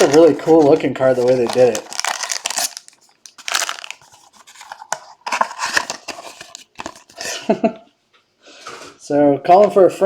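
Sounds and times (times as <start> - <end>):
cards and wrapper rustling: 0.0 - 7.5.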